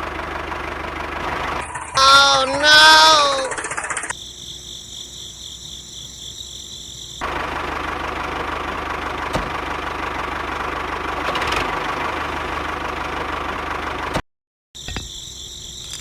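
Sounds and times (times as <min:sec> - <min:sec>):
engine idling: 0:00.0 - 0:04.2, 0:07.1 - 0:14.2.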